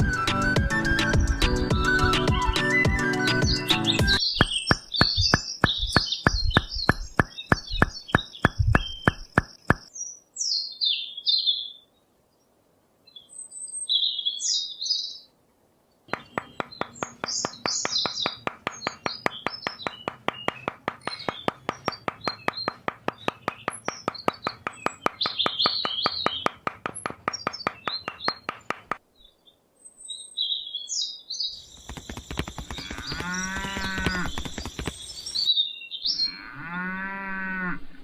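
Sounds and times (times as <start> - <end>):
small birds chirping: 2.8 - 15.3, 16.1 - 36.4
regular clicking ticks: 4.4 - 9.9, 16.1 - 29.0, 31.8 - 35.2.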